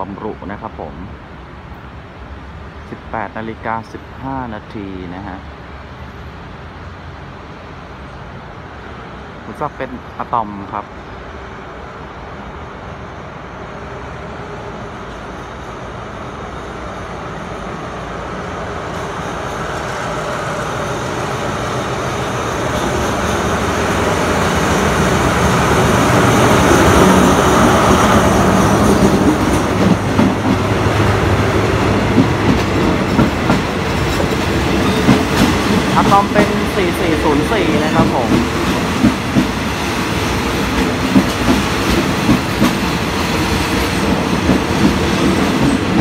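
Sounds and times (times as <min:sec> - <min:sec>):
diesel locomotive engine: 0:00.0 - 0:46.0
wheels clacking over rail joints: 0:22.5 - 0:46.0.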